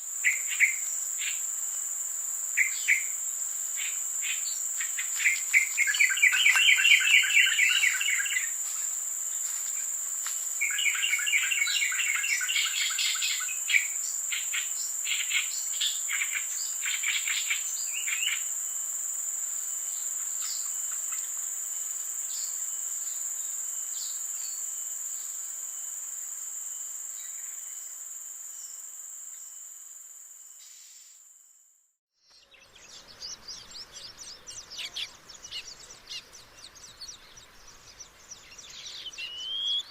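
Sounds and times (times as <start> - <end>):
insects droning: 0.0 - 39.9
bird chirping: 2.6 - 3.2, 3.8 - 8.9, 10.6 - 18.5, 32.2 - 39.9
bird singing trilled phrases: 4.3 - 8.5, 32.2 - 39.9.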